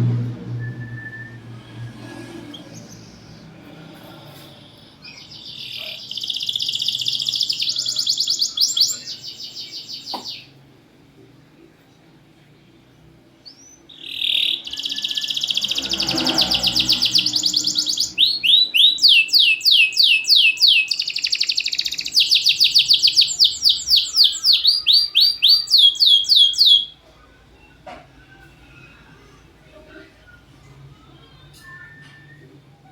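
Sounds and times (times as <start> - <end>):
canary singing: 4.3 - 10.6, 13.4 - 32.8.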